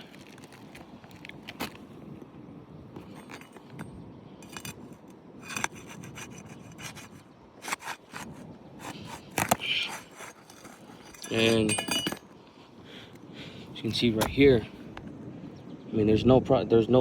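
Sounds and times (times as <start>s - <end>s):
shingle scraping and crackling: 0.0s - 1.9s, 3.0s - 12.4s
shingles tearing: 5.5s - 11.7s.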